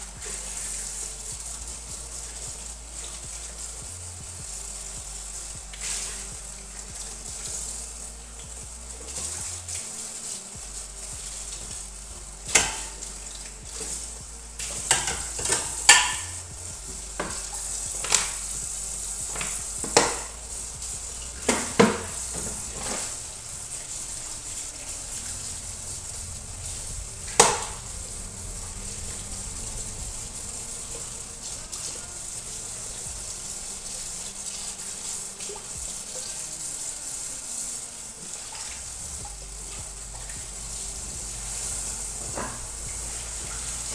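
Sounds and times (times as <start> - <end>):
steady high hiss: 0.0 - 43.9
dishes and utensils clinking: 14.6 - 28.0.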